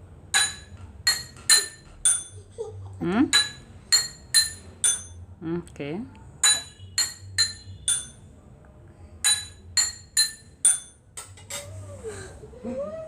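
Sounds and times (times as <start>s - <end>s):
glasses struck ringing clinks: 0.4s - 2.4s, 3.3s - 5.2s, 6.4s - 8.2s, 9.2s - 11.3s.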